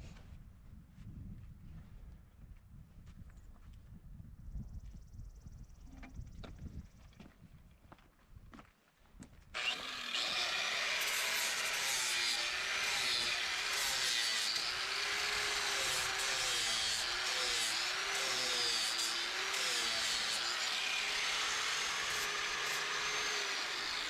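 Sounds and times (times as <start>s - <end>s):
angle grinder grinding metal: 9.6s - 24.0s.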